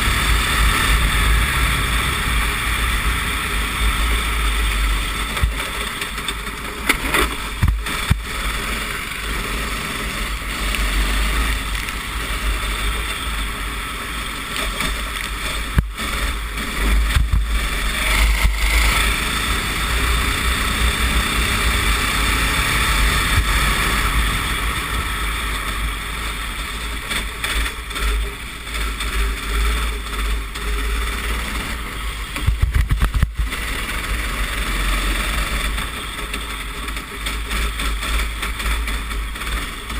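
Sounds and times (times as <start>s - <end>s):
kart engine running hard: 0.0s - 39.9s
wind rumbling on microphone: 0.0s - 39.9s.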